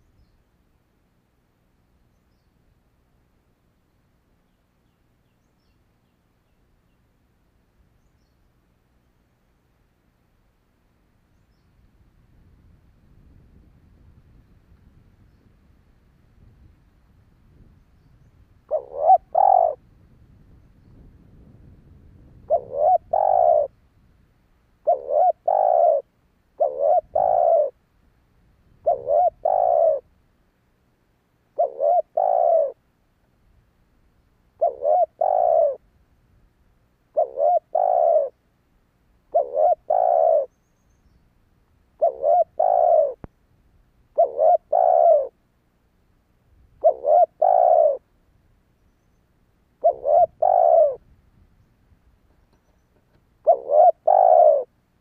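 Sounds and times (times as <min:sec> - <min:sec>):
dove cooing: 0:18.7 - 0:19.8, 0:22.2 - 0:23.7, 0:24.8 - 0:27.8, 0:28.8 - 0:30.1, 0:31.5 - 0:32.8, 0:34.6 - 0:35.8, 0:37.1 - 0:38.4, 0:39.3 - 0:40.6, 0:42.0 - 0:43.3, 0:44.1 - 0:45.4, 0:46.8 - 0:48.1, 0:49.8 - 0:51.0, 0:52.4 - 0:54.7.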